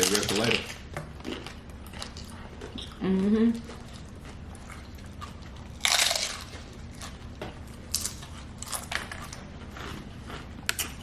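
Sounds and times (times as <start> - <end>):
crackling chewing crunches: 0.0 - 2.9, 3.6 - 11.0
crunchy bite into taco shell: 5.2 - 7.2.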